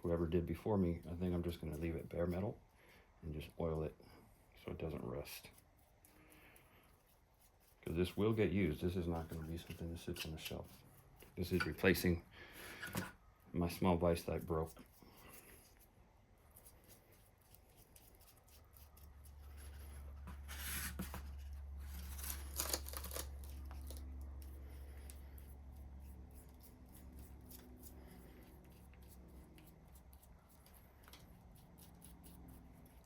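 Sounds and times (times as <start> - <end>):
low steady hum: 0.0 - 33.0
handling and rustling noises: 14.0 - 25.5.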